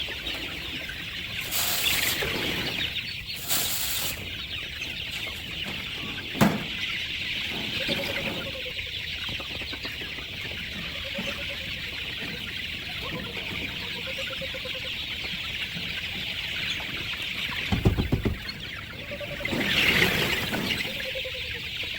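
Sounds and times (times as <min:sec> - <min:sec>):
chickens clucking: 0:00.0 - 0:21.9
sharp knock: 0:17.7 - 0:18.5.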